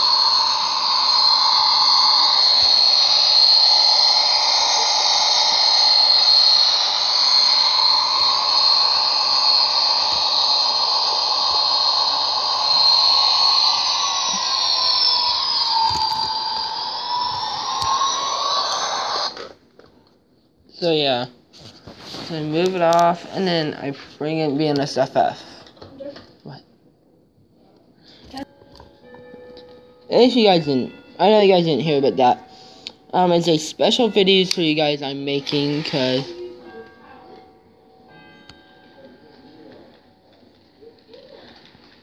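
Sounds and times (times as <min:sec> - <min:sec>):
model train high-pitched drone: 0:00.0 - 0:19.5, 0:28.1 - 0:42.0.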